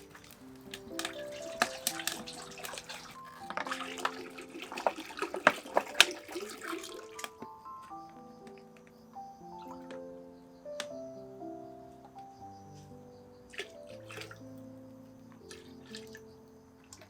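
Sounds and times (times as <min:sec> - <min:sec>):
water splashing and running: 0:00.0 - 0:07.5, 0:13.5 - 0:14.5, 0:15.4 - 0:17.0
soft background music: 0:00.0 - 0:17.0.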